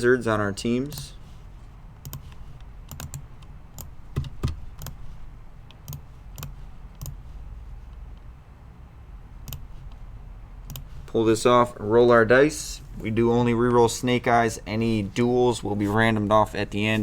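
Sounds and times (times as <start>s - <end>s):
computer keyboard keys clicking: 2.0s - 2.3s, 2.9s - 5.0s, 5.7s - 7.2s, 10.7s - 10.9s.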